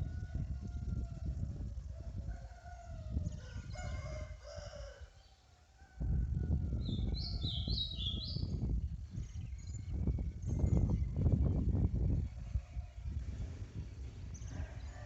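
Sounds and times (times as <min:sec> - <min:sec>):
rooster crowing: 0:02.0 - 0:07.6, 0:14.5 - 0:15.0.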